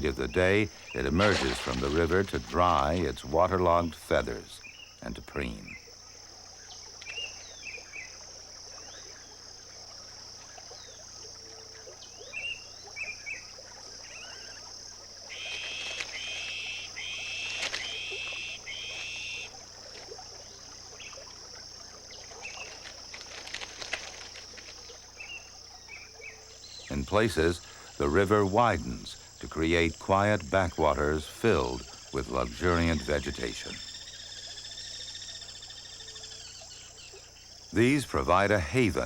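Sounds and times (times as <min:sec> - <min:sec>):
high-pitched insect drone: 0:14.0 - 0:19.7.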